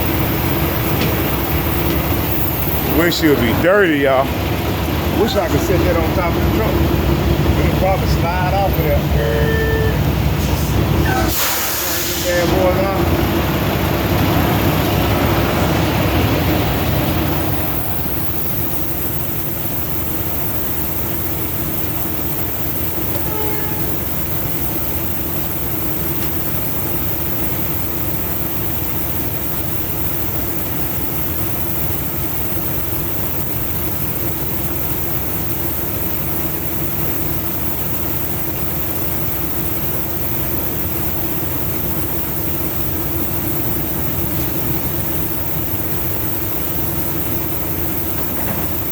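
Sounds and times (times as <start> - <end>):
diesel truck engine running: 0.0 - 48.9
hiss-like noise: 10.4 - 12.6.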